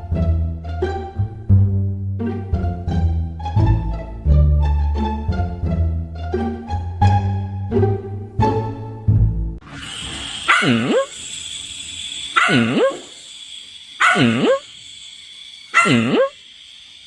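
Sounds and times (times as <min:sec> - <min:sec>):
dog barking: 0:10.5 - 0:11.1, 0:12.4 - 0:13.1, 0:14.0 - 0:14.7, 0:15.7 - 0:16.4.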